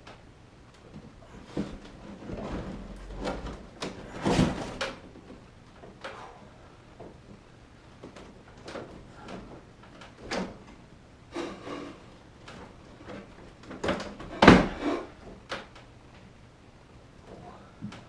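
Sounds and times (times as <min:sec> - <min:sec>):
scraping and rubbing: 0:11.4 - 0:12.1.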